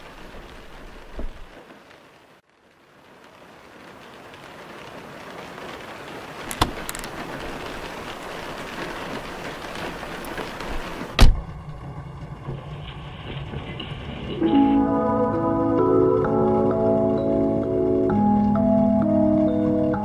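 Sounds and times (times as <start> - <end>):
steady rain: 0.0 - 20.0
sharp clicks: 6.5 - 7.2
heavy thump: 11.2 - 11.8
low hum: 11.3 - 19.9.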